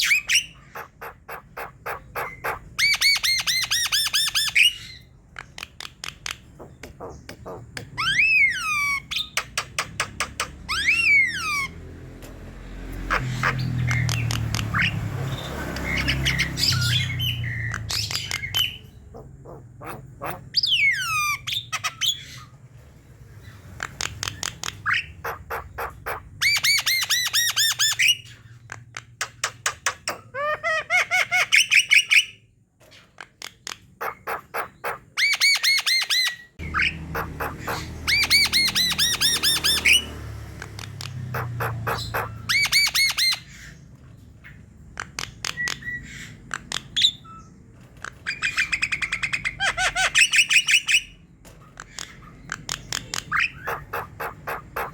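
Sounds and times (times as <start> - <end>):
bird singing harsh fast notes: 13.0 - 22.6, 33.9 - 47.6, 51.9 - 54.9.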